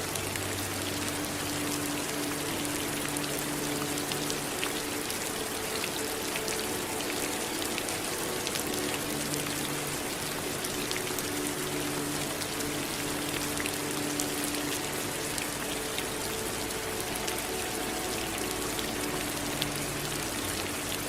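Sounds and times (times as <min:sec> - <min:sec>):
raindrops ticking: 0:00.0 - 0:21.0
steady rain falling: 0:00.0 - 0:21.0.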